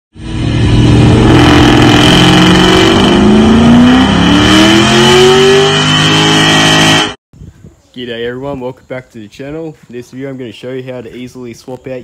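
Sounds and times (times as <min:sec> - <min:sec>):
car engine accelerating hard: 0:00.2 - 0:07.2.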